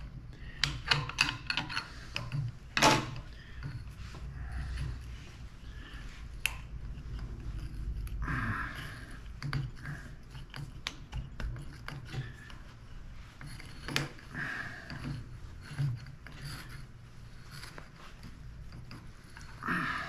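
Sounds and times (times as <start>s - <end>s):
pliers clicking and scraping metal: 0.5s - 3.9s, 6.3s - 8.2s, 8.8s - 12.6s, 13.4s - 14.3s.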